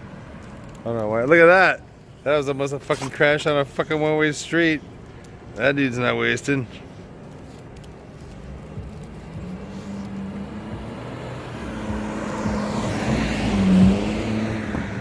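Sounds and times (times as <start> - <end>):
car driving past: 8.7 - 15.0.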